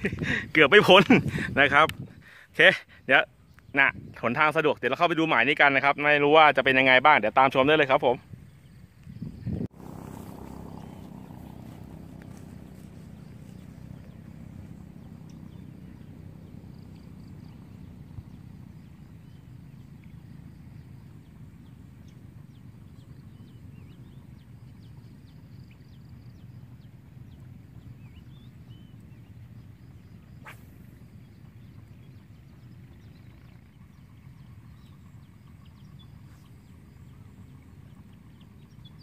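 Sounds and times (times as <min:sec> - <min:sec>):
wind rumble on microphone: 0:00.0 - 0:02.5, 0:03.4 - 0:04.8, 0:06.6 - 0:39.0
high bird chirps: 0:08.5 - 0:39.0.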